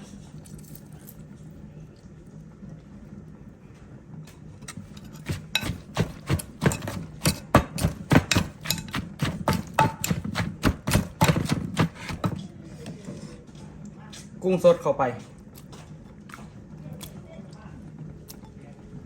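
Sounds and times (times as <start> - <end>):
pestle pounding in mortar: 5.0 - 12.4.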